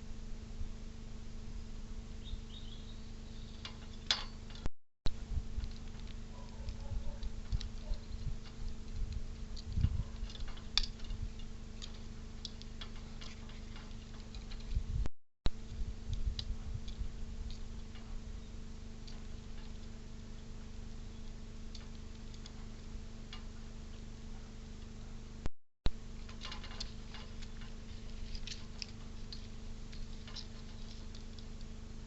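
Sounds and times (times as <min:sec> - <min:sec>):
steady electrical hum: 0:00.0 - 0:32.0.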